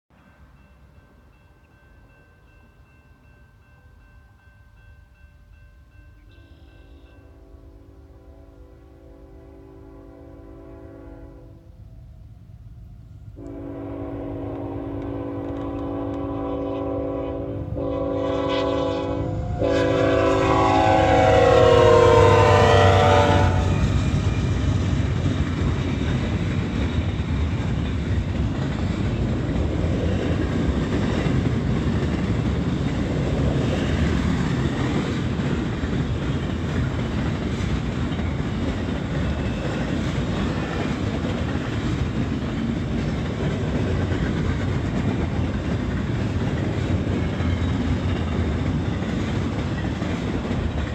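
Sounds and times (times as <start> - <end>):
train rumbling past: 0.1 - 50.9
locomotive air horn blasts: 6.5 - 11.7, 13.4 - 24.0.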